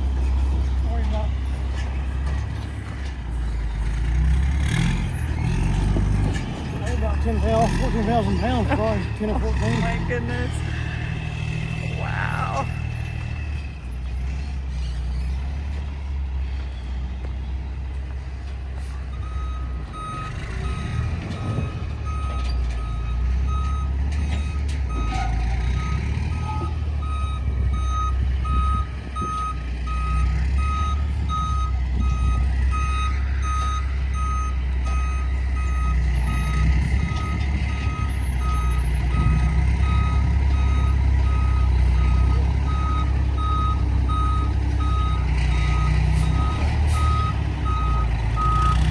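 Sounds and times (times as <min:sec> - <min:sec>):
diesel truck engine rumbling: 0:00.0 - 0:48.9
reversing alarm beeping: 0:19.1 - 0:48.8.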